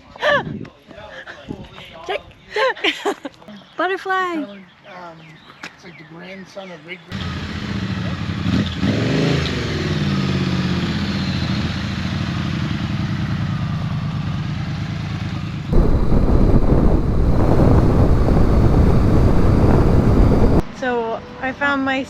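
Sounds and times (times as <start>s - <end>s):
motorcycle engine accelerating: 15.7s - 20.6s.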